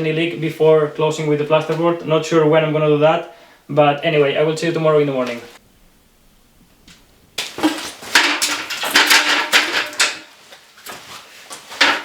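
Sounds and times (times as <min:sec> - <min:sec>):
hard objects clattering and knocking: 0:07.4 - 0:12.0.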